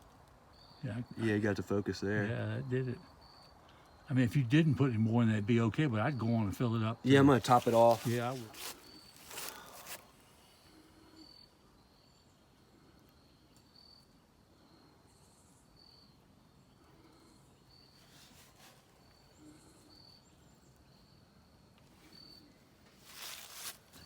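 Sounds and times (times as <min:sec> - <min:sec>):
insect chirping: 0:02.2 - 0:24.0
faint rustling: 0:07.1 - 0:10.3, 0:17.9 - 0:19.6, 0:21.8 - 0:24.0.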